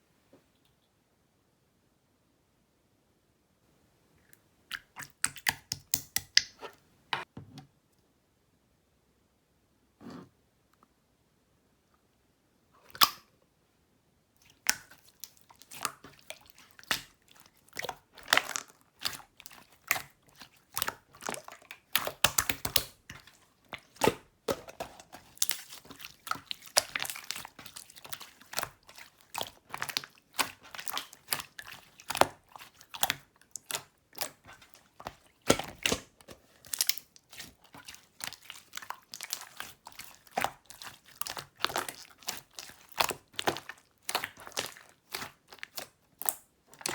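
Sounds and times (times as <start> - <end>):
slime crackling and popping: 17.8 - 23.2, 25.1 - 46.9.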